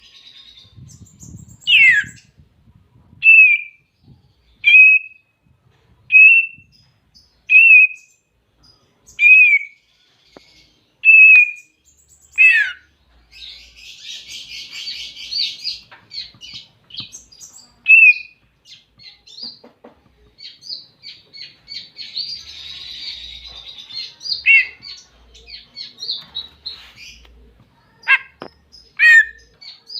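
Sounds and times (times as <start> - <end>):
bird whistling: 1.6 - 2.2, 3.2 - 3.8, 4.6 - 5.2, 6.1 - 6.7, 7.5 - 8.2, 9.2 - 9.8, 11.0 - 11.7, 17.9 - 18.3, 24.4 - 24.9, 29.0 - 29.4.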